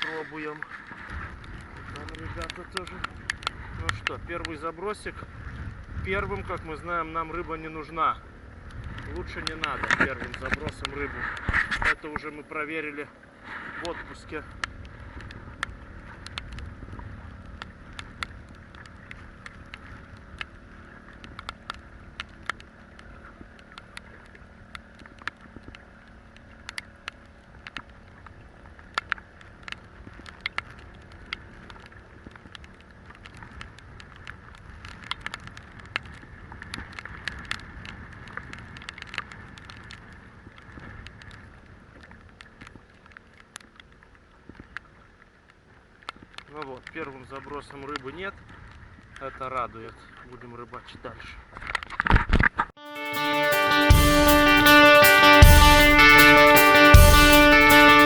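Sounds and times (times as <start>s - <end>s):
wind on microphone: 1.0s - 12.0s.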